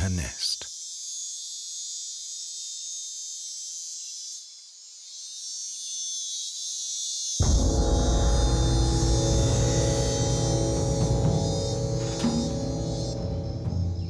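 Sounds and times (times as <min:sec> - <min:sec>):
insects chirping: 0:00.0 - 0:14.0
loud music: 0:07.4 - 0:14.0.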